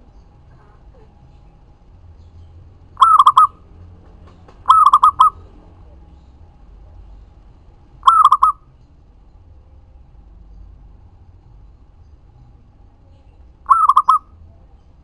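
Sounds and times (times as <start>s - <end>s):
dove cooing: 2.8s - 6.2s, 8.0s - 8.6s, 13.6s - 14.5s.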